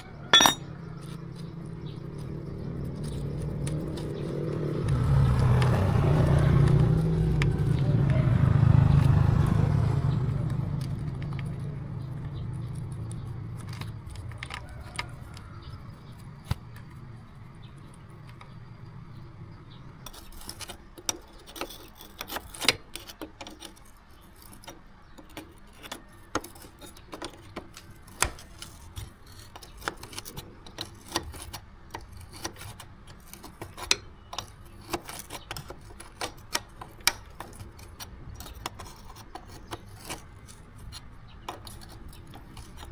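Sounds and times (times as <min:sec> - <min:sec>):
metal clicks and clinks: 0:00.2 - 0:01.2.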